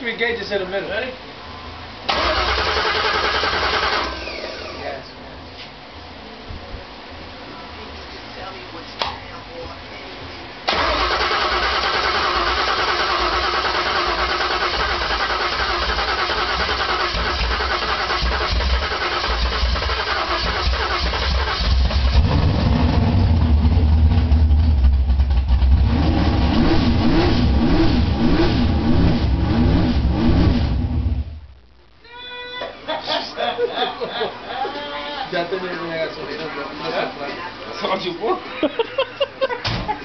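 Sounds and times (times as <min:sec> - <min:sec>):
car engine running and revving: 0:12.7 - 0:31.3.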